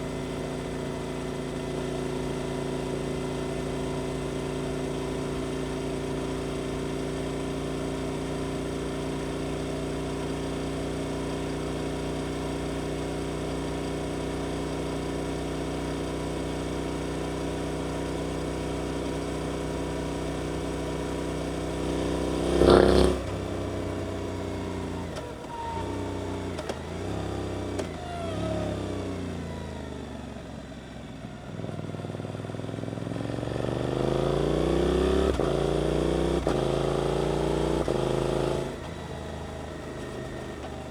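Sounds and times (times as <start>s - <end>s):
motorcycle engine revving: 19.4s - 29.6s, 31.5s - 40.9s.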